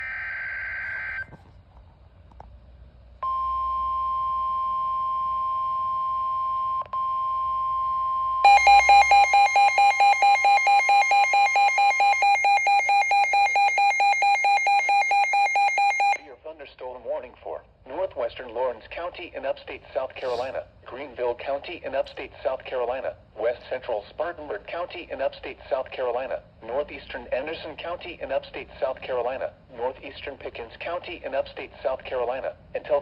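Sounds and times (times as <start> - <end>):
steady warning alarm tone: 3.2 - 16.2
rapid pulsing alarm beeps: 3.3 - 16.2
data burst noise: 8.5 - 16.2.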